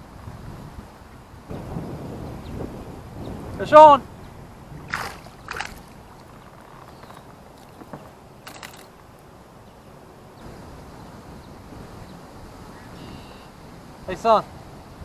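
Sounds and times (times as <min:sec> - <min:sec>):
reel clicks: 0:04.9 - 0:09.0.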